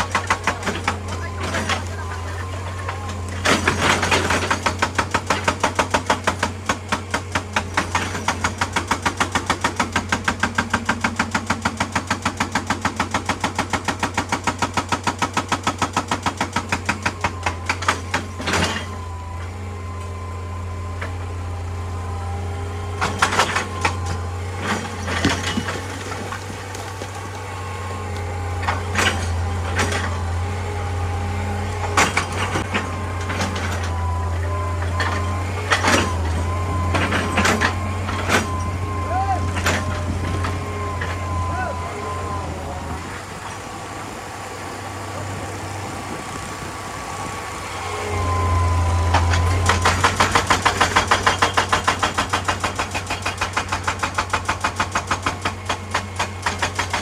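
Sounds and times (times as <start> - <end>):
machine engine drone: 0.0 - 6.5, 17.2 - 52.9
hydraulic breaker hammering rock: 0.0 - 43.7, 47.8 - 57.0.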